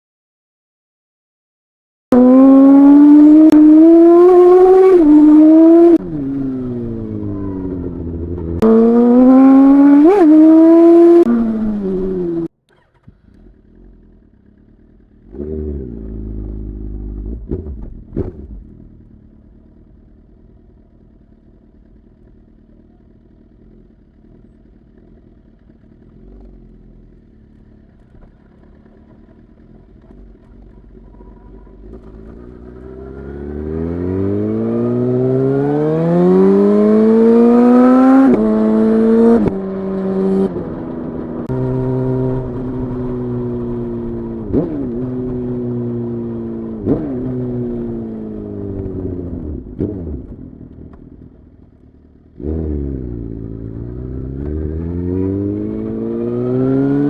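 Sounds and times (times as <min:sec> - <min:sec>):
motorcycle engine revving: 0:02.1 - 0:57.0
motorcycle engine idling: 0:12.7 - 0:15.4, 0:18.0 - 0:32.9, 0:50.3 - 0:52.4.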